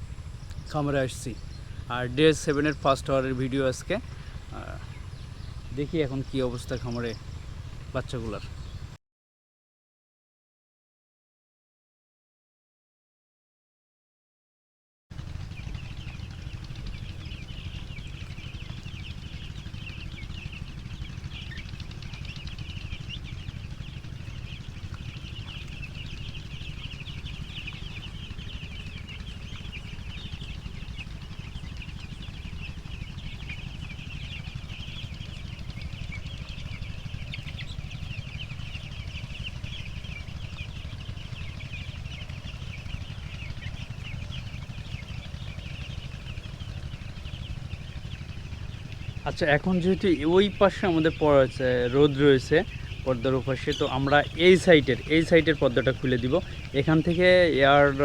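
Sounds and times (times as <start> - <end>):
chicks cheeping: 0.0 - 9.0, 15.1 - 58.0
steady low rumble: 15.2 - 58.0.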